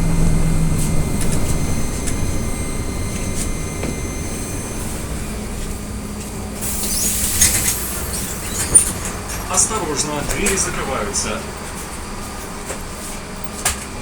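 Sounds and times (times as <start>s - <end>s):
faint hum: 0.0s - 7.0s
low rumble: 0.0s - 7.0s
loud hiss: 6.6s - 8.7s.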